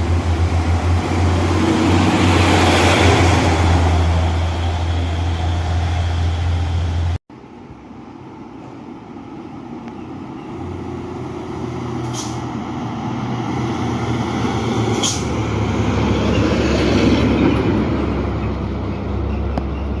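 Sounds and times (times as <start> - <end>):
truck engine: 0.0 - 7.2, 10.0 - 20.0.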